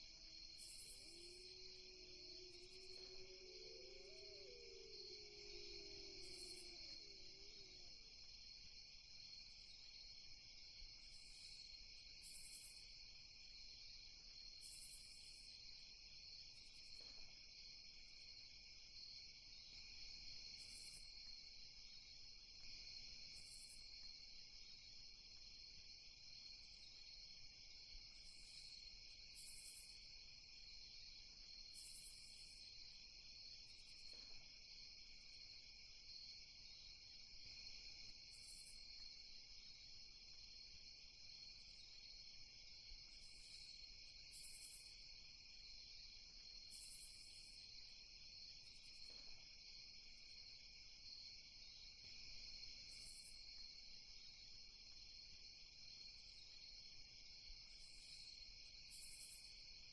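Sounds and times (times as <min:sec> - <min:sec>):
crickets trilling: 0:00.0 - 0:10.1.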